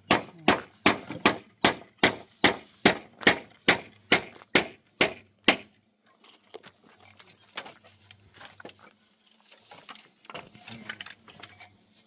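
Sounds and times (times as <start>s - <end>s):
hammer striking nails into wood: 0.0s - 5.7s.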